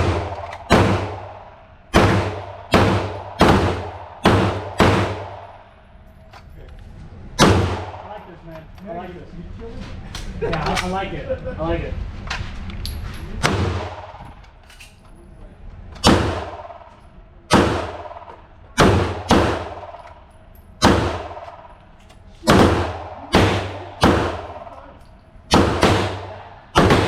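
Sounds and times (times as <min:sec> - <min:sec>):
gunshots with echo: 0:00.0 - 0:05.7, 0:07.4 - 0:08.3, 0:16.0 - 0:20.0, 0:20.8 - 0:21.8, 0:22.4 - 0:24.8, 0:25.5 - 0:27.0.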